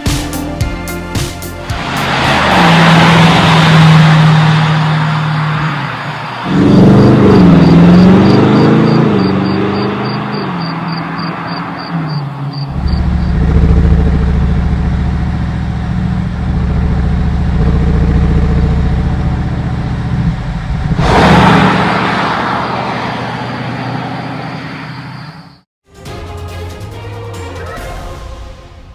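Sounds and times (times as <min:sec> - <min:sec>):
car exhaust roaring: 0:01.6 - 0:25.3
loud rushing burst: 0:01.7 - 0:07.0, 0:20.9 - 0:24.0.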